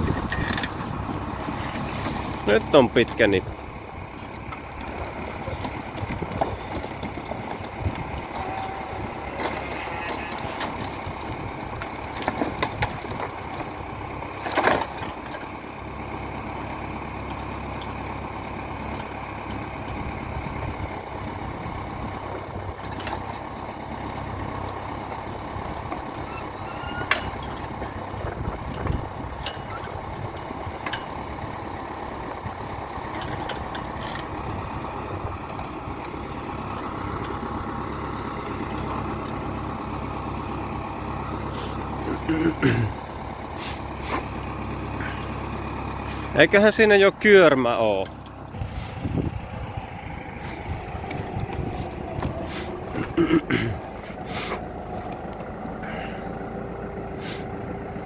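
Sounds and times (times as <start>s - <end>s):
boards knocking and clunking: 0.0s - 15.5s
tractor diesel engine running: 0.0s - 58.0s.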